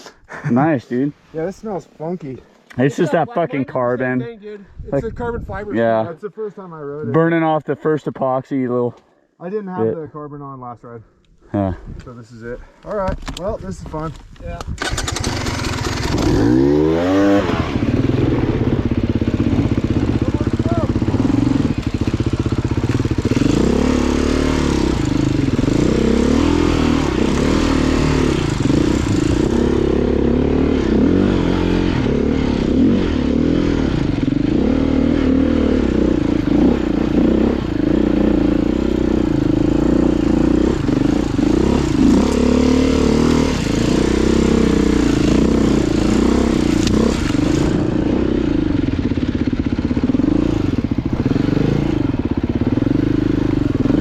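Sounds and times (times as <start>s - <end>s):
dirt bike engine running: 14.8s - 54.0s.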